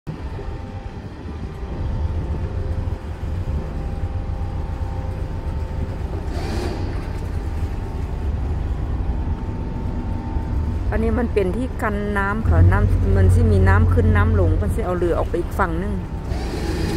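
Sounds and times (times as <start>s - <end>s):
boat engine rumbling: 0.0s - 16.9s.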